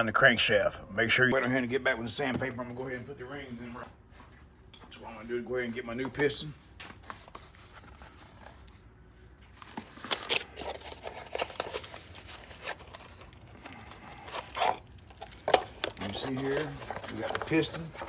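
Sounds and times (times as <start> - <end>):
rustling of packaging: 6.7 - 18.0.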